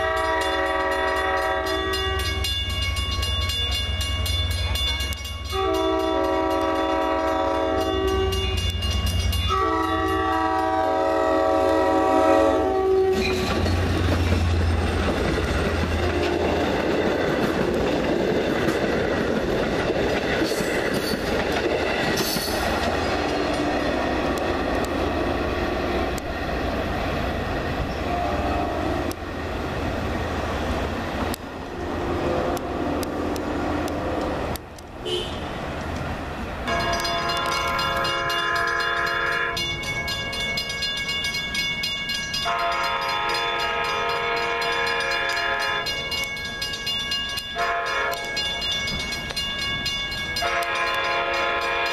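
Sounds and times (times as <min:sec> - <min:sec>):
train air horn blasts: 0:00.0 - 0:02.5, 0:05.5 - 0:08.6, 0:09.5 - 0:13.4, 0:16.0 - 0:16.8, 0:23.2 - 0:24.4, 0:28.0 - 0:29.2, 0:31.7 - 0:34.3, 0:35.0 - 0:35.6, 0:36.7 - 0:39.9, 0:42.4 - 0:46.1, 0:47.6 - 0:48.5, 0:50.4 - 0:51.9
train wheels rumbling and clicking: 0:00.0 - 0:51.9.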